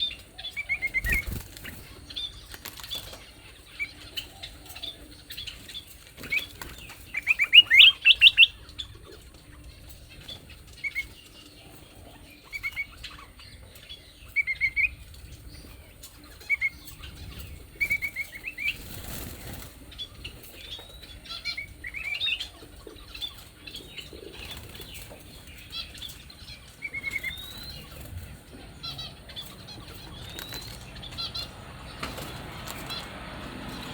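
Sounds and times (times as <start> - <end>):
songbirds chirping: 0.0 - 33.9
bird wings fluttering: 0.9 - 3.3, 17.3 - 20.6, 29.8 - 33.9.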